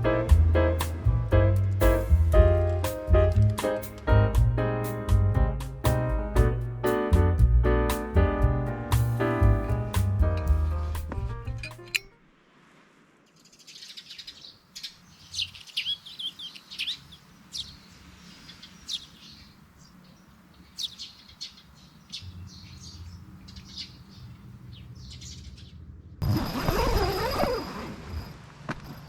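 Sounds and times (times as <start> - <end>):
small birds chirping: 13.3 - 26.0.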